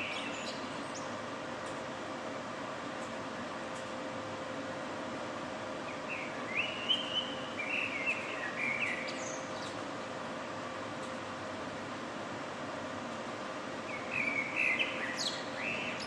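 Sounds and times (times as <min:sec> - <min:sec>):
bird chirping song: 0:00.0 - 0:01.2, 0:05.8 - 0:09.8, 0:13.9 - 0:16.0
city background hiss: 0:00.0 - 0:16.0
faint hum: 0:00.0 - 0:16.0.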